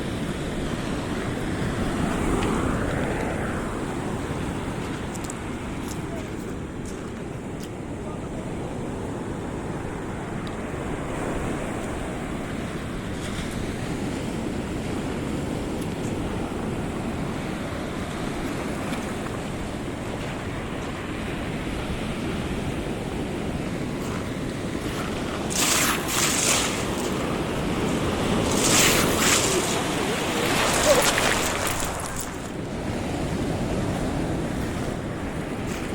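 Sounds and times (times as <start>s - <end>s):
wind on microphone: 0.0s - 35.9s
surf breaking on beach: 8.6s - 35.9s.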